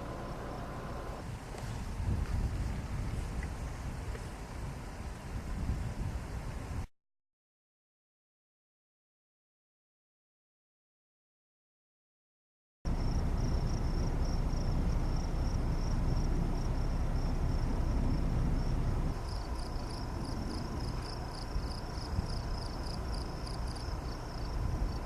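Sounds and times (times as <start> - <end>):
insects trilling: 12.9 - 25.0
low rumble: 12.9 - 25.0
pulsing insect chirping: 12.9 - 25.0.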